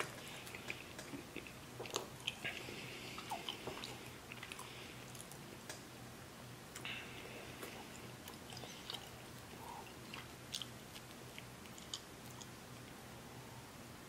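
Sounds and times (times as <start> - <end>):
person chewing: 0.0 - 5.4, 7.1 - 13.0.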